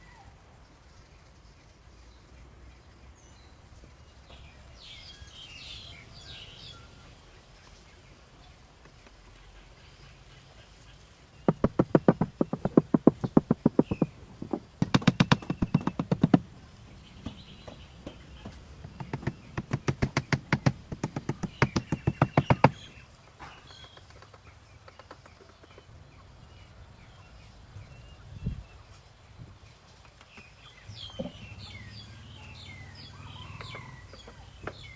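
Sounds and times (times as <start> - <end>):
rapid even tapping: 11.5 - 23.0.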